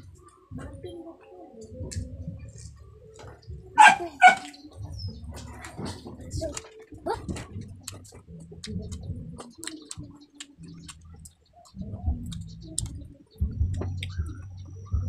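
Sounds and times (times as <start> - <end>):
close chewing sounds: 1.9 - 13.0.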